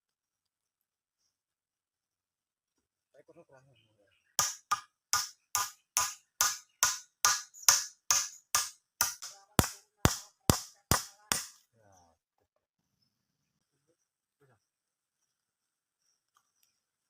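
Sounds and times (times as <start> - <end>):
sharp knocks: 4.4 - 11.5.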